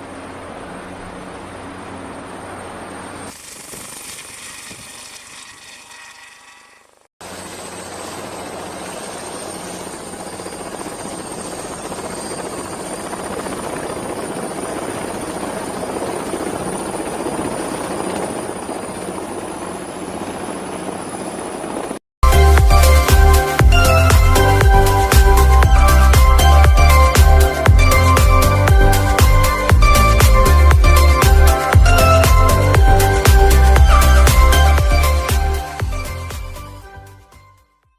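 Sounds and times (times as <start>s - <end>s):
high thin whine: 0.0s - 9.7s
helicopter rotor and turbine: 0.0s - 36.9s.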